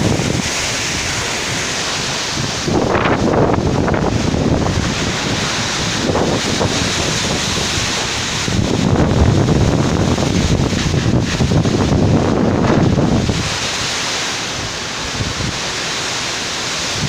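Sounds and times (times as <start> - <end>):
storm wind buffeting microphone: 0.0 - 16.1, 16.7 - 17.0.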